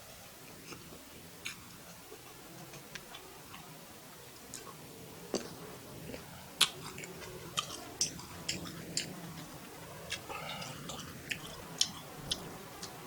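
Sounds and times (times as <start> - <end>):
chewing fried rice: 0.5 - 13.0
mouth clicks and smacks: 4.5 - 13.0.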